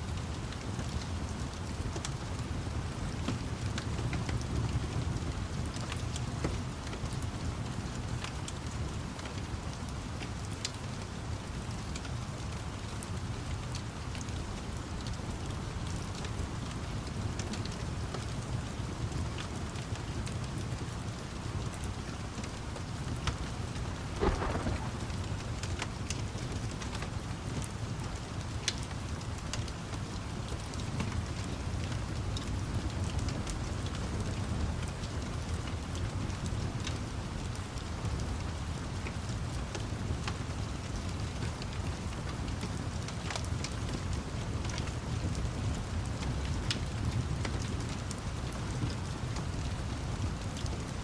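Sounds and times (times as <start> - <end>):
steady rain: 0.0 - 51.0
wood fire crackling: 0.1 - 36.2
low rumble: 24.0 - 25.7.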